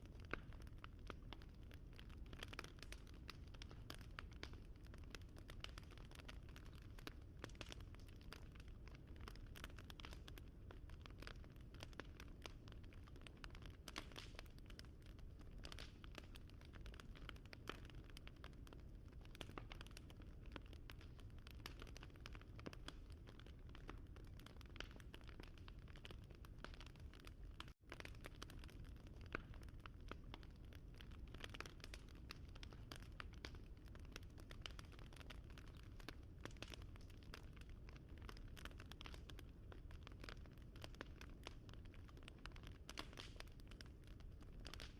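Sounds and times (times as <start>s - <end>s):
wood fire crackling: 0.2s - 44.9s.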